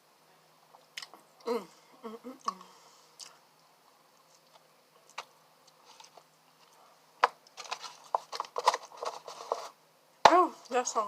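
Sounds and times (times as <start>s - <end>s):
person chewing food: 2.4s - 3.4s, 4.1s - 6.8s.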